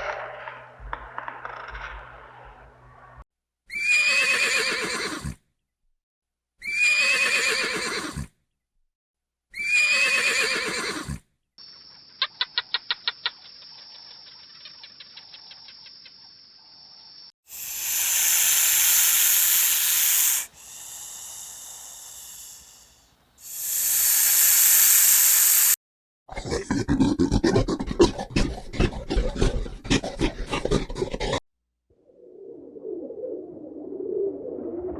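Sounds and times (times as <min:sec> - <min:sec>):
animal hissing: 0:17.5 - 0:25.8
fast rough rhythmic sound: 0:17.5 - 0:25.8.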